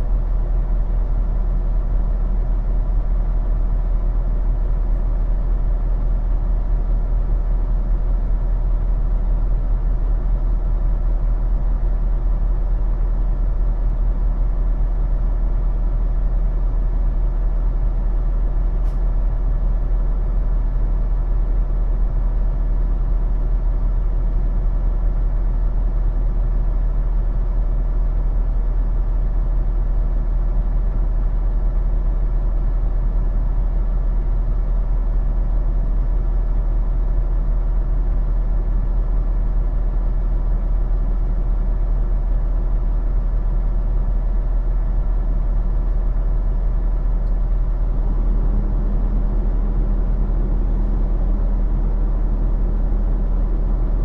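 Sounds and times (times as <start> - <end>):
diesel truck engine idling: 0.0 - 29.7, 30.5 - 54.0
faint click: 18.8 - 19.1.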